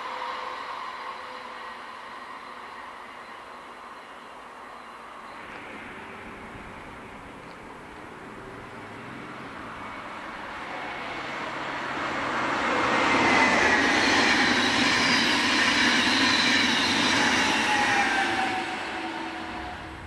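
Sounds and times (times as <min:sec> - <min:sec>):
electric train passing: 0:00.0 - 0:20.0
train wheels on rails whining: 0:00.0 - 0:20.0.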